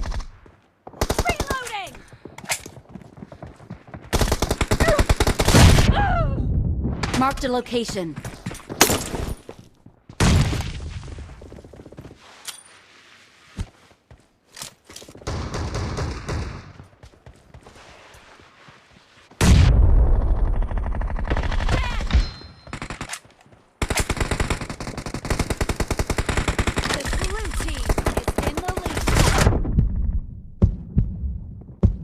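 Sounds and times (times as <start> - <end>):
rapid automatic fire: 23.8 - 30.2.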